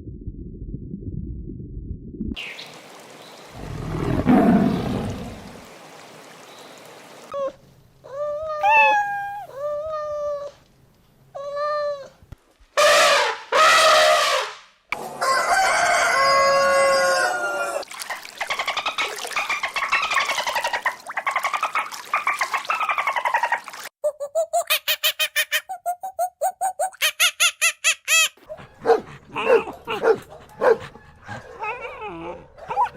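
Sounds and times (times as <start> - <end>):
rooster crowing: 15.2 - 17.8.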